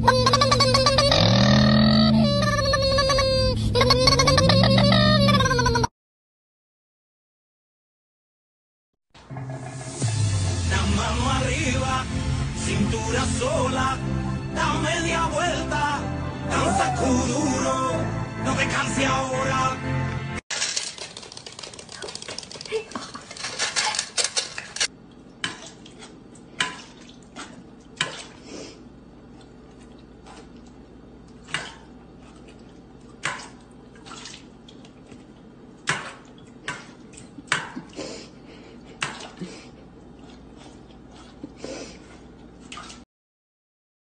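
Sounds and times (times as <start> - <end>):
dog bowl clinking and clattering: 20.6 - 24.9.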